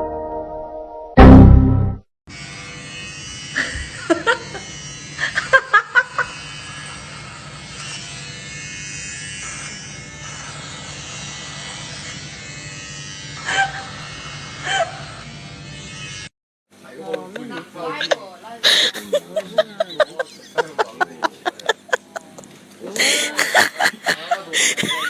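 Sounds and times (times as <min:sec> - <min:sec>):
small electric motor buzzing: 0:02.3 - 0:16.3.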